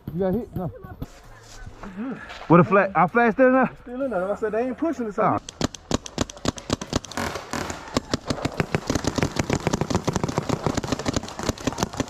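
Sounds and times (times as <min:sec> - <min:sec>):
paintball markers firing rapidly: 0:05.4 - 0:12.0.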